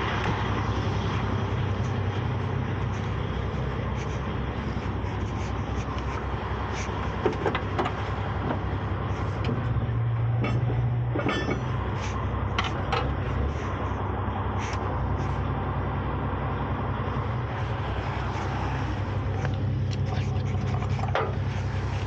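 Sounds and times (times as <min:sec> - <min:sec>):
truck engine running: 0:00.0 - 0:22.0
equipment clanking: 0:00.1 - 0:13.4, 0:18.9 - 0:22.0.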